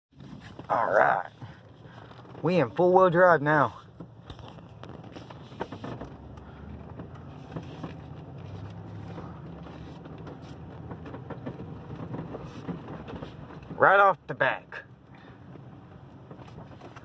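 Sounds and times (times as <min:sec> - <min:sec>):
truck engine low hum: 0:00.1 - 0:17.0
knocks and rattles: 0:03.9 - 0:13.9.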